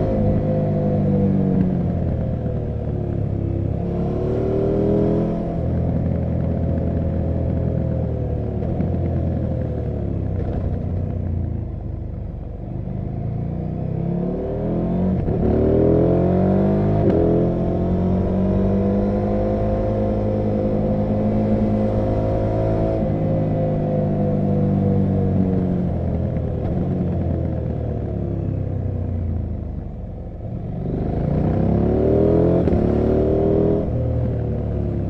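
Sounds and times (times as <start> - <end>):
motorcycle engine revving: 13.2 - 29.9, 30.5 - 35.0.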